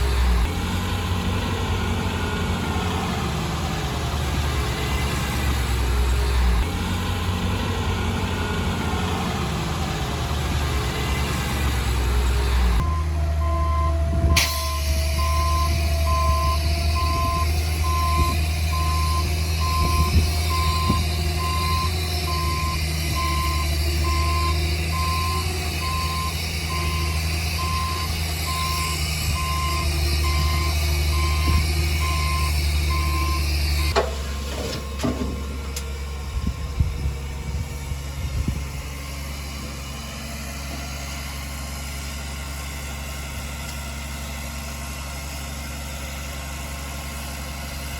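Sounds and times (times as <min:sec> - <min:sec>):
diesel engine running: 0:00.0 - 0:47.9
reverse warning beeper: 0:12.8 - 0:34.0
knocks and clanks: 0:33.9 - 0:35.9.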